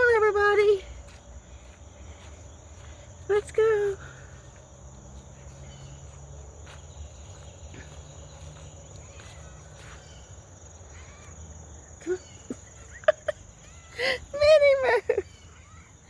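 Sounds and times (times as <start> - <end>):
insect chorus: 0.0 - 16.0
faint bird chirps: 5.4 - 14.0, 15.1 - 16.0.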